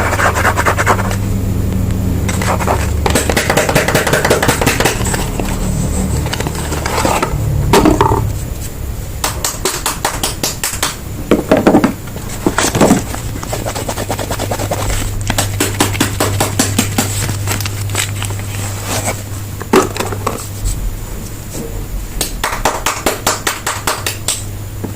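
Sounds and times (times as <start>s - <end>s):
wrapper scraping: 12.2s - 19.3s.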